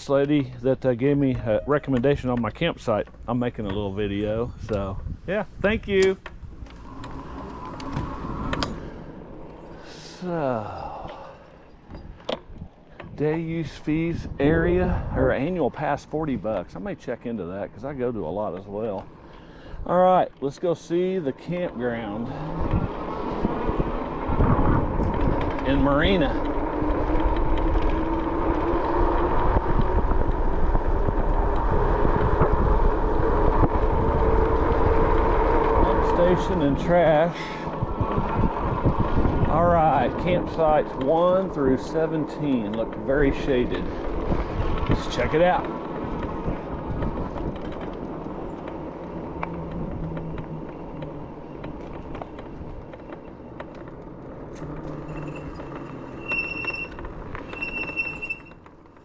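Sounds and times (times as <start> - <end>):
wind buffeting microphone: 3.6 - 9.6, 11.9 - 16.7, 21.5 - 53.9
low rumble: 3.9 - 12.7
bike rolling with rattles: 5.8 - 13.8, 20.2 - 59.0
brakes squealing: 6.0 - 12.3, 20.4 - 59.0
electric motor whine: 6.7 - 9.0.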